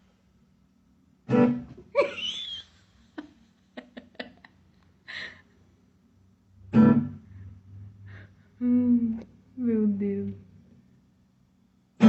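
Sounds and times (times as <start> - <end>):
plucked string notes: 6.6 - 10.4.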